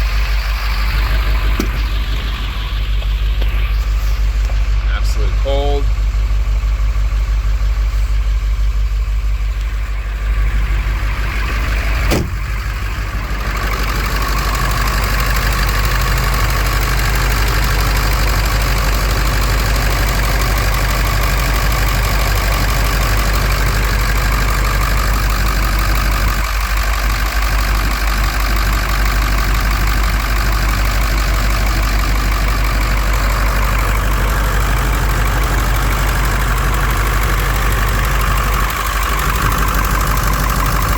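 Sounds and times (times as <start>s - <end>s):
truck engine idling: 0.0s - 40.9s.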